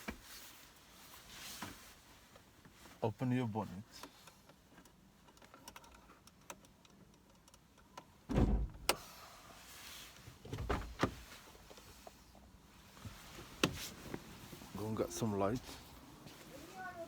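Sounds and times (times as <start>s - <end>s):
car door latch clicks: 8.3s - 9.0s
car door thumps: 8.3s - 9.0s, 10.5s - 11.2s.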